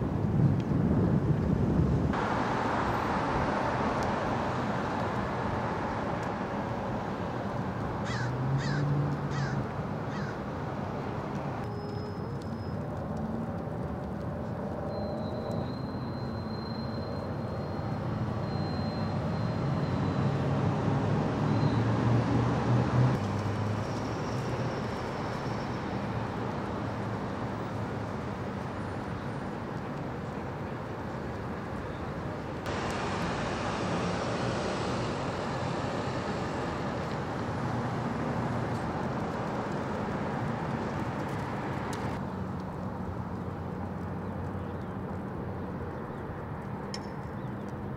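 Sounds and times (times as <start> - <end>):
roadway noise hiss: 0.0 - 47.9
engine humming: 32.6 - 45.4.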